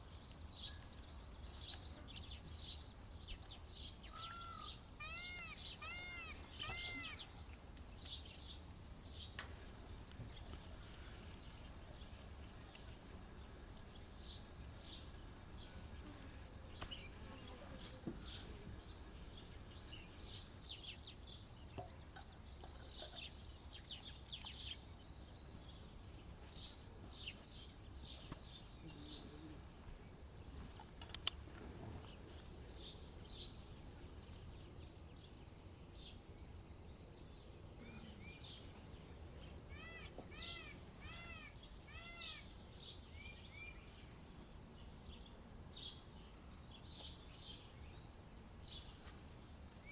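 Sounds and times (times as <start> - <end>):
birds chirping: 0.0 - 34.9.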